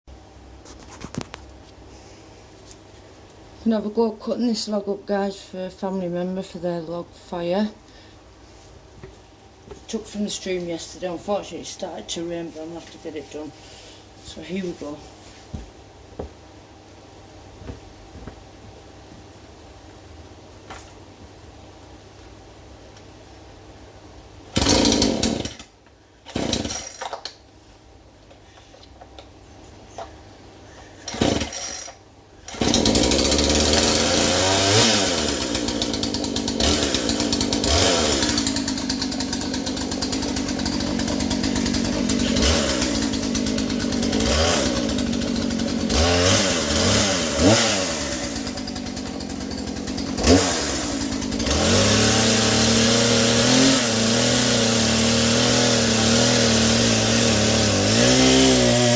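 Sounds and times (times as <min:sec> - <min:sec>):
chainsaw starting and revving: 0:24.5 - 0:27.2, 0:31.0 - 0:58.9.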